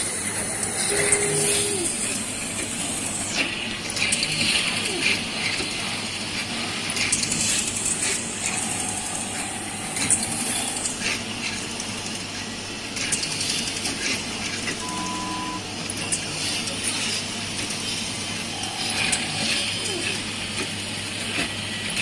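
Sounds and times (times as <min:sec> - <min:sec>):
analyzer mechanical hum and hiss: 0:00.0 - 0:22.0
short steady tone: 0:14.8 - 0:15.6.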